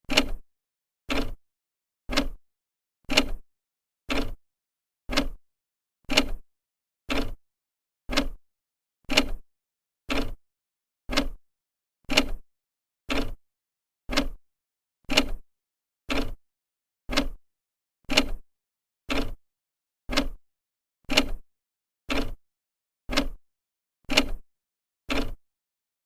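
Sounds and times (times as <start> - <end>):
clock ticking: 2.1 - 2.4, 4.1 - 4.4, 5.1 - 5.4, 7.1 - 7.4, 8.1 - 8.4, 10.1 - 10.4, 11.1 - 11.4, 13.1 - 13.4, 14.1 - 14.4, 17.1 - 17.4, 19.1 - 19.4, 20.1 - 20.4, 23.1 - 23.4.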